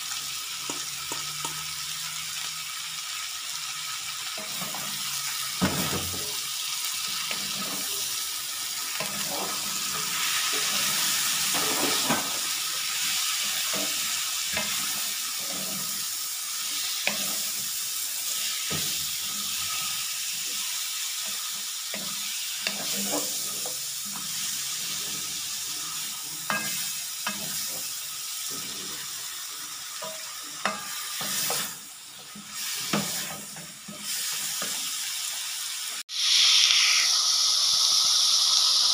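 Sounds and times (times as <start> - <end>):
food sizzling in hot oil: 0.0 - 38.9
wooden spatula scraping a pan: 9.0 - 16.0, 22.0 - 25.5.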